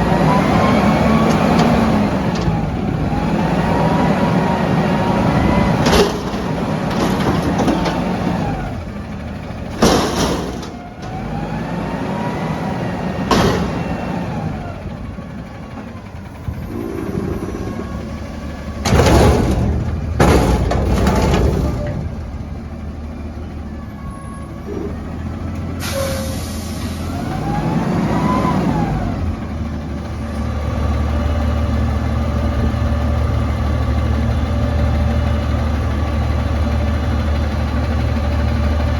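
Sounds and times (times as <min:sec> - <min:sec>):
garbage truck engine revving: 0:00.0 - 0:38.9
loud metallic bangs: 0:05.6 - 0:11.3, 0:13.2 - 0:14.5, 0:18.7 - 0:22.5.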